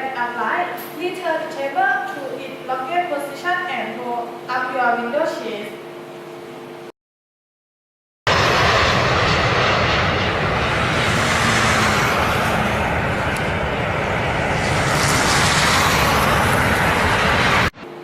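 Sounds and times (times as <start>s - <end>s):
aircraft engines running: 8.3s - 18.0s.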